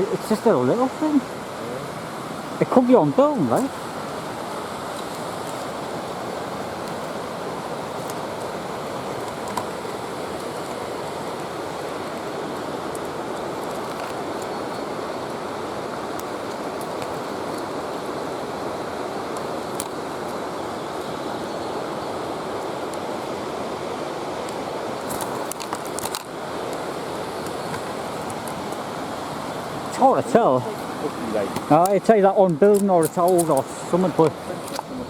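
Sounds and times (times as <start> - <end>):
steady rushing noise: 22.2 - 35.0.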